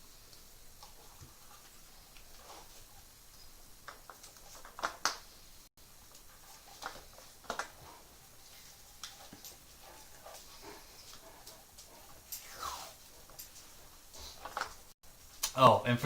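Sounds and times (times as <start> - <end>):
faint handling clicks and knocks: 6.0 - 15.5.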